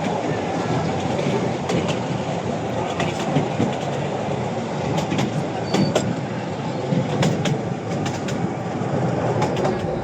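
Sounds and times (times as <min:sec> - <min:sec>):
train wheels rumbling on track: 0:00.0 - 0:10.0
wheels clicking over rail joints: 0:04.9 - 0:06.2, 0:07.0 - 0:10.0.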